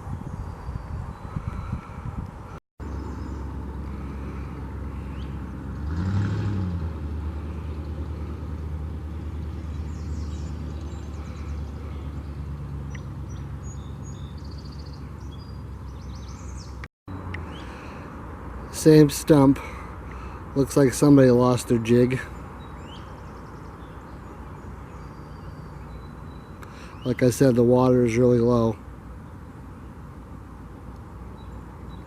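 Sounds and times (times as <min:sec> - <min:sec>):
low motor hum: 0:02.3 - 0:17.7
small birds chirping: 0:02.8 - 0:05.6, 0:09.4 - 0:30.2, 0:30.9 - 0:32.0.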